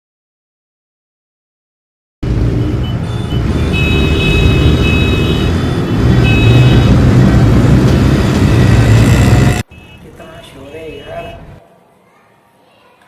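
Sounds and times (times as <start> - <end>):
heavy engine rumble: 2.2 - 9.6
horns sounding: 2.5 - 11.6.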